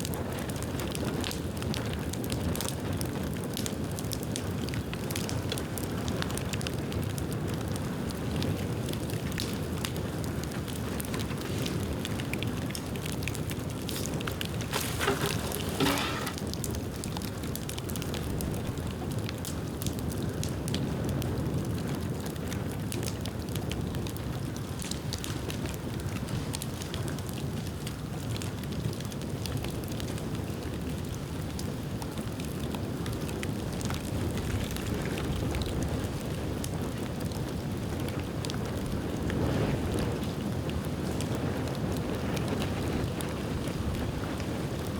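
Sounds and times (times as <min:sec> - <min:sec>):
bonfire burning and crackling: 0:00.0 - 0:44.9.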